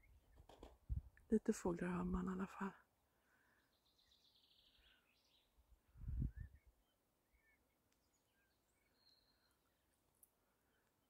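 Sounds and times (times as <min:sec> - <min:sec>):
birds singing: 0:03.4 - 0:05.6, 0:06.2 - 0:11.0.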